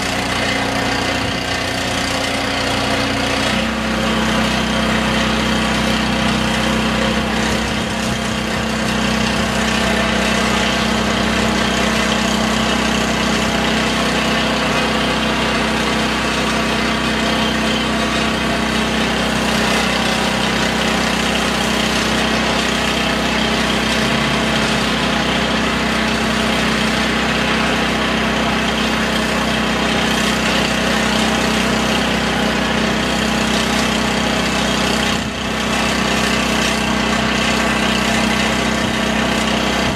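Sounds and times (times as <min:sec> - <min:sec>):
motor humming: 0:00.0 - 0:39.9.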